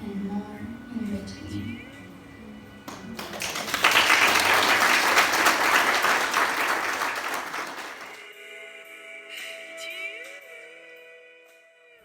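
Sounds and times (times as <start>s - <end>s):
audience applauding: 2.9s - 8.2s.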